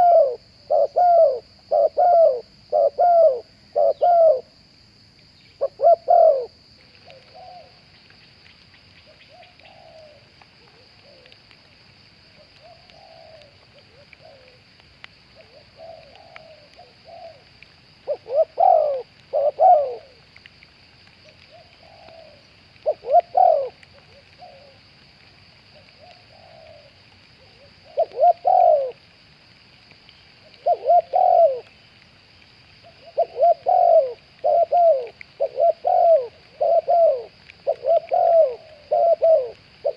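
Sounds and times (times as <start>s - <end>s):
doves cooing: 0.0s - 4.5s, 5.6s - 7.8s, 9.1s - 11.4s, 12.4s - 14.7s, 15.3s - 20.3s, 21.2s - 25.0s, 25.7s - 29.0s, 30.4s - 31.8s, 32.8s - 39.9s
distant doves cooing: 0.0s - 4.6s, 5.4s - 8.0s, 9.0s - 11.4s, 12.4s - 14.7s, 15.4s - 20.4s, 21.2s - 24.8s, 25.7s - 29.0s, 30.4s - 31.8s, 32.8s - 39.9s.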